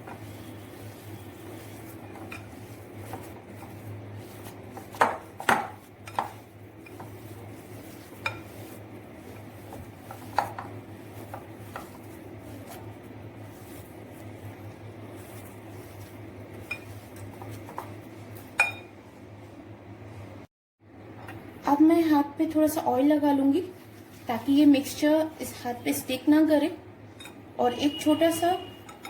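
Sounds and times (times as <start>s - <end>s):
utensil scraping a bowl: 0.0s - 17.9s.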